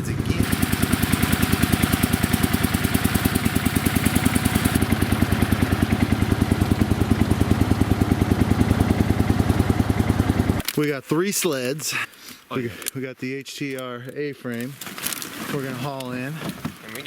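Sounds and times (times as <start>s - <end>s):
small engine puttering: 0.0s - 10.8s.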